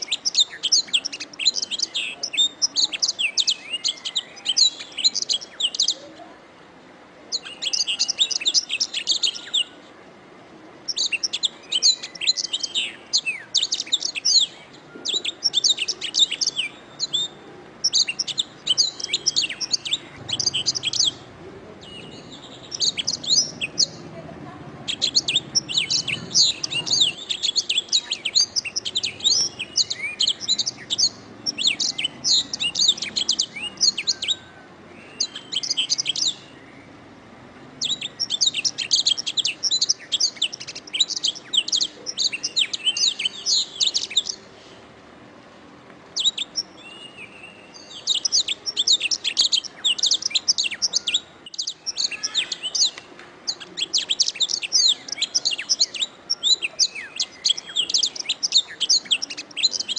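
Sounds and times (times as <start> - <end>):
canary trilling and chirping: 17.8 - 21.4, 22.0 - 24.1, 24.8 - 34.3, 48.0 - 59.9.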